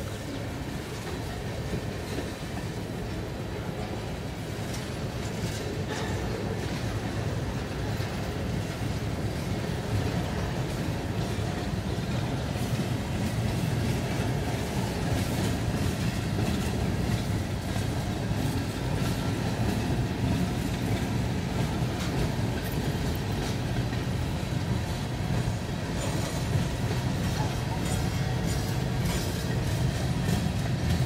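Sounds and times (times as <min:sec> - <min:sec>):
freight train rumbling past: 0:00.0 - 0:31.0
wheels clicking over rail joints: 0:00.0 - 0:31.0.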